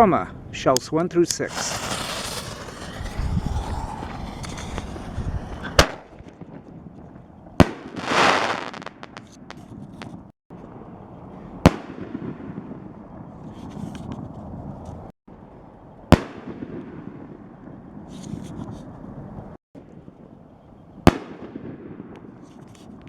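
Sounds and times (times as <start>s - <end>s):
firework rushing hiss: 1.4s - 6.2s, 7.9s - 9.0s
firework bangs: 1.5s - 6.7s, 7.6s - 10.2s.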